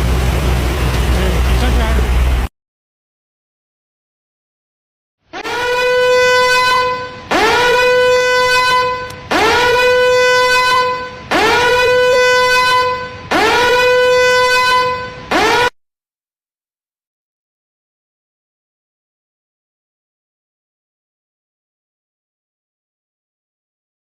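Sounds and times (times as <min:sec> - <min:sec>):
warning alarm horn blasts: 0:05.4 - 0:15.8.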